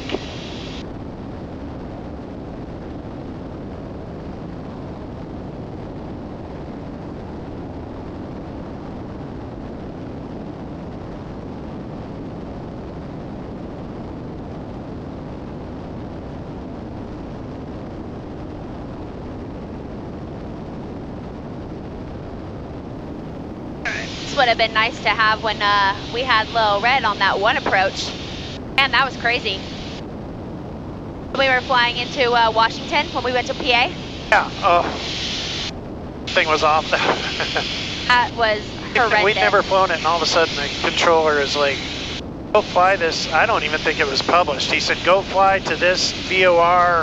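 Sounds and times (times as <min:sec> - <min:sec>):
airplane engines droning: 0:00.0 - 0:02.5, 0:23.0 - 0:47.0.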